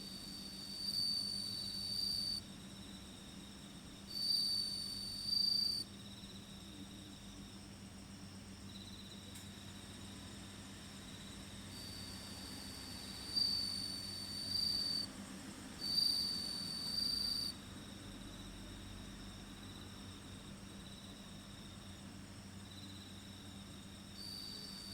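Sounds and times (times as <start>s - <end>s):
cricket loud high trill: 0.0s - 2.4s, 4.2s - 5.8s, 11.7s - 15.1s, 15.8s - 17.6s
fainter cricket trill: 0.0s - 24.9s.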